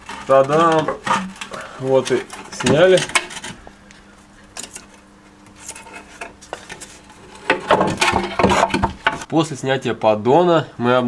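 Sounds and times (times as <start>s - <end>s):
metal tools clinking and knocking: 2.2s - 3.6s.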